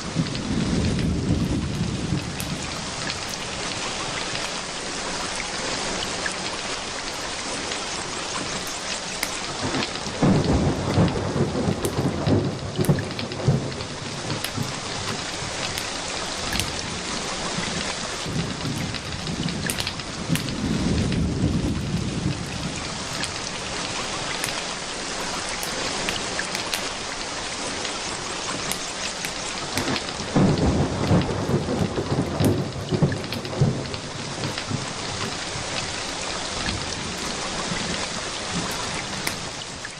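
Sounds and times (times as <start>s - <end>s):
thunder rumbling: 0.0s - 4.5s, 7.9s - 39.6s
steady rain: 0.0s - 39.9s
sharp crackles: 6.1s - 39.9s.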